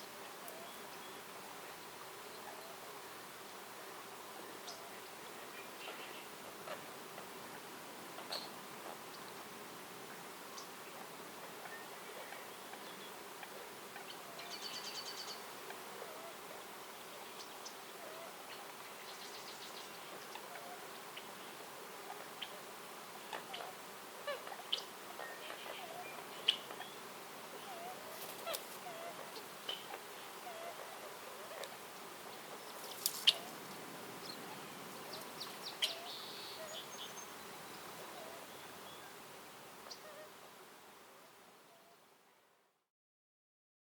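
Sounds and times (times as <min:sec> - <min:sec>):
birds chirping: 0:16.1 - 0:40.3.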